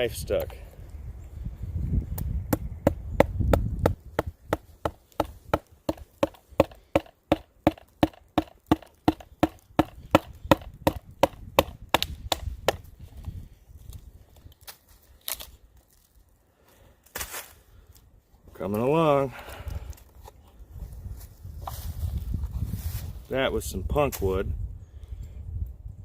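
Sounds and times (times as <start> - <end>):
stick pounding wood: 2.5 - 12.9.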